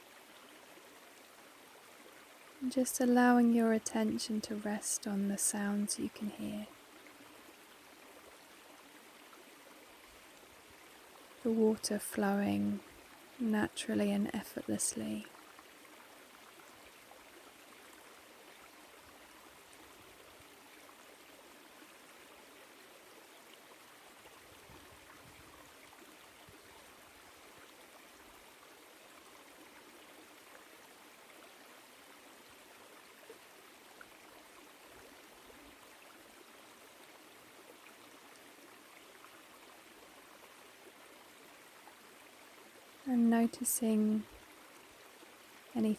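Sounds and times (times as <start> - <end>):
stream flowing over rocks: 0.0 - 45.9.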